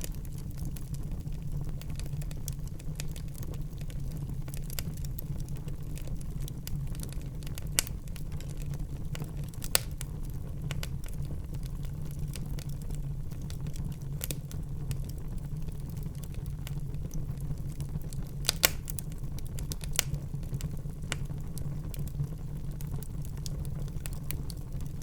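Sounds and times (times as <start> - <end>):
fire crackling: 0.0 - 25.0
fire rumbling: 0.0 - 25.0
sharp wood pops: 18.5 - 18.9.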